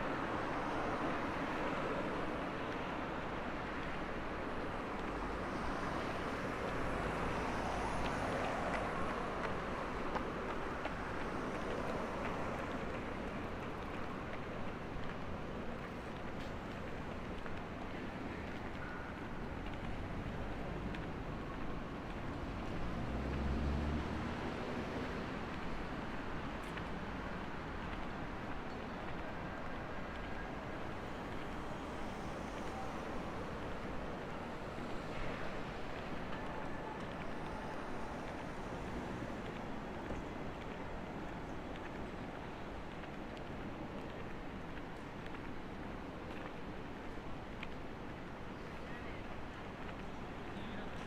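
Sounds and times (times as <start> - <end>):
city traffic: 0.0 - 51.0
passing vehicle engine rumble: 22.2 - 25.5.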